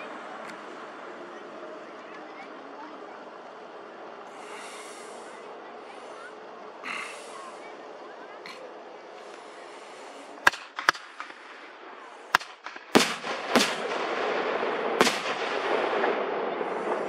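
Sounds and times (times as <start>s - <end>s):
continuous noisy rush: 0.0s - 17.0s
firework shells banging: 10.1s - 17.0s.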